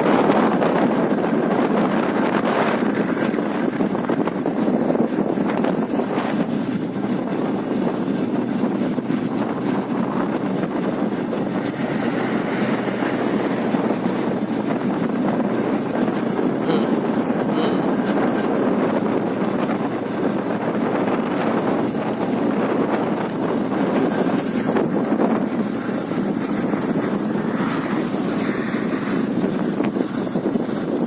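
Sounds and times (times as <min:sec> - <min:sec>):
road and wind noise: 0:00.0 - 0:31.0.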